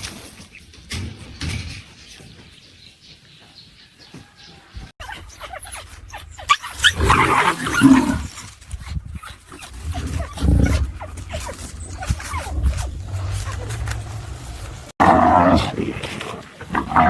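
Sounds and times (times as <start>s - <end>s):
clicks and scuffling: 0.0s - 15.0s
animal calling: 4.2s - 15.7s.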